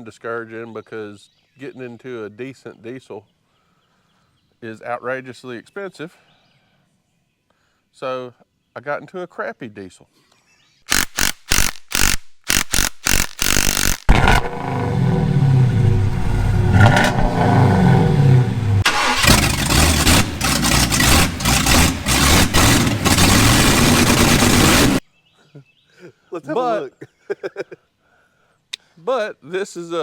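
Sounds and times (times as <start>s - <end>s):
engine cranking and revving: 10.9s - 25.0s.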